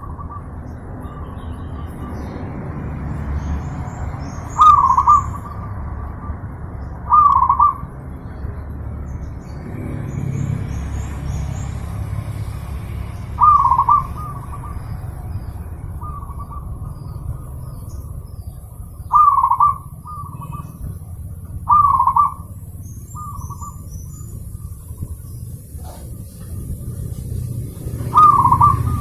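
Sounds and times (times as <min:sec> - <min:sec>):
small birds chirping: 0:00.0 - 0:29.0
steady low rumble: 0:02.0 - 0:29.0
dove cooing: 0:04.6 - 0:05.8, 0:07.1 - 0:07.9, 0:13.4 - 0:15.4, 0:19.0 - 0:20.8, 0:21.6 - 0:22.6, 0:28.0 - 0:29.0.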